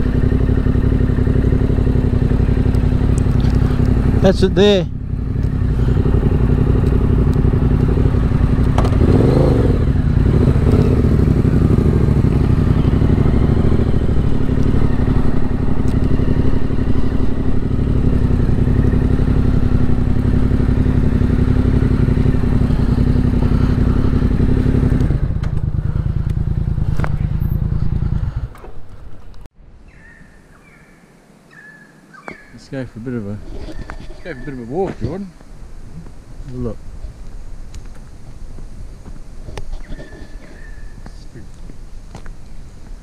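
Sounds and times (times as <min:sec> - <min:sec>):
motorcycle engine running: 0:00.0 - 0:29.5.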